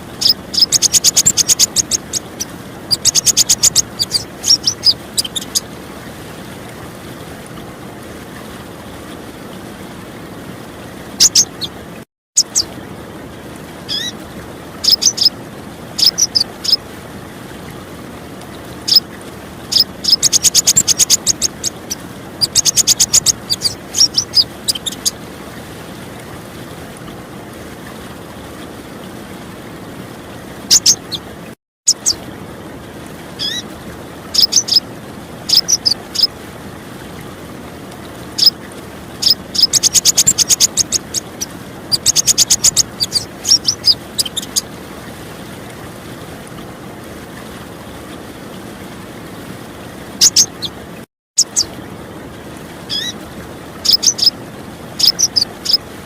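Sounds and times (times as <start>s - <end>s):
running water: 0.0s - 56.0s
sunbird chirps and trills: 0.2s - 5.6s, 11.2s - 11.7s, 12.4s - 12.7s, 14.8s - 15.4s, 16.0s - 16.8s, 19.7s - 25.2s, 30.7s - 31.2s, 31.9s - 32.2s, 34.3s - 34.8s, 35.5s - 36.3s, 38.4s - 38.6s, 39.2s - 44.6s, 51.4s - 51.7s, 53.8s - 54.4s, 55.0s - 55.8s.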